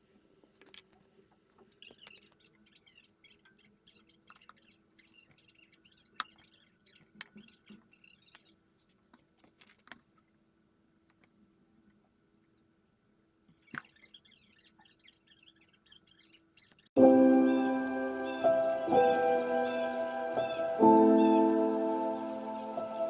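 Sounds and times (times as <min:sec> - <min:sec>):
quiet crackling and clicking: 0:00.2 - 0:12.8, 0:13.4 - 0:17.0.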